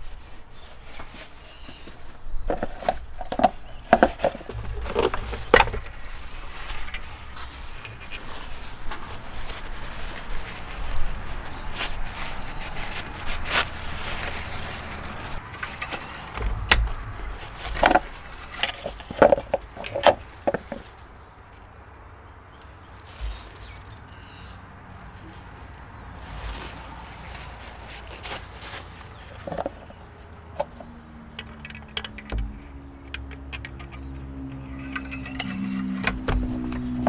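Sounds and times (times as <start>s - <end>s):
hands handling parts clattering: 0.9s - 9.6s, 13.8s - 21.0s, 29.3s - 37.0s.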